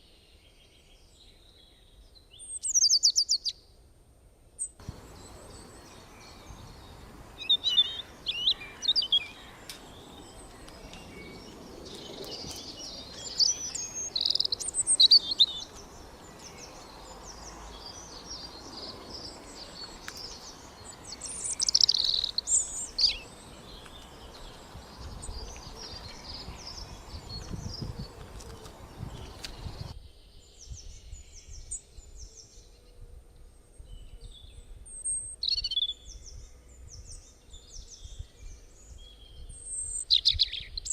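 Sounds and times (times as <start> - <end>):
steady background hiss: 3.7 - 27.2
birds chirping and calling: 4.6 - 33.0.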